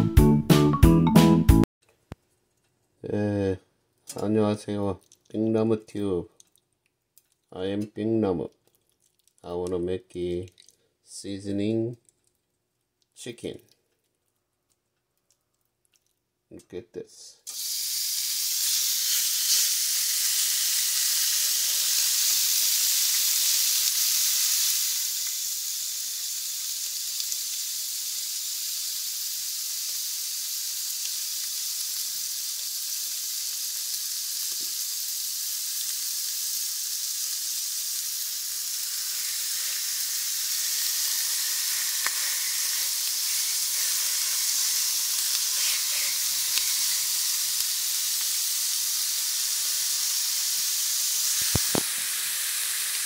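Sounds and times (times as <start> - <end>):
chicken sizzling in a frying pan: 17.5 - 53.0.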